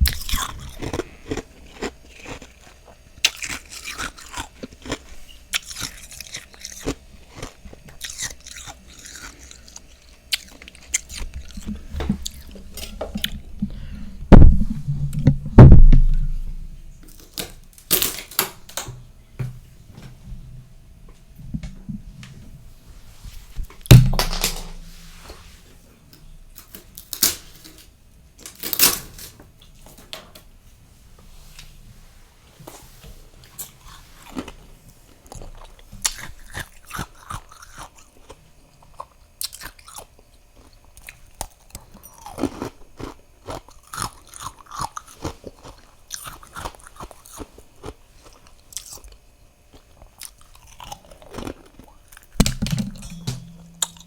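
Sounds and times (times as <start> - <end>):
person chewing crunchy frost: 0.0 - 17.4, 33.8 - 52.4.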